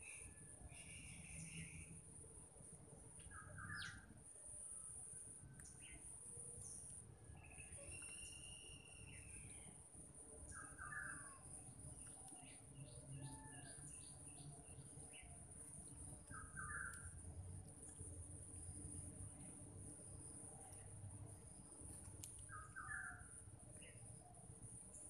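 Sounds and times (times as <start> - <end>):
faint bird calls: 10.5 - 15.4, 16.3 - 17.1.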